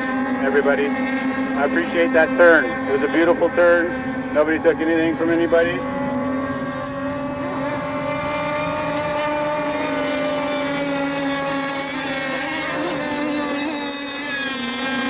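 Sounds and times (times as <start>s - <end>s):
racing boat engines high-pitched drone: 0.0s - 15.0s.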